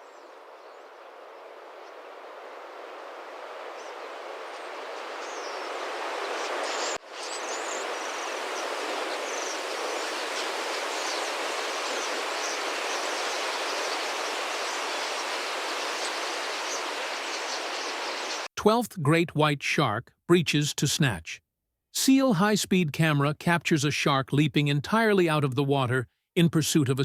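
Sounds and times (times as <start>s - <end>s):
starlings calling: 3.8s - 18.5s.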